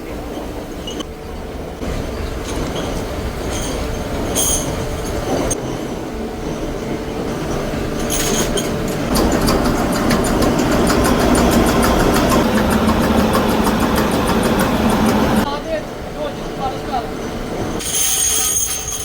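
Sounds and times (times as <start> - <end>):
machinery running: 0.0 - 19.0.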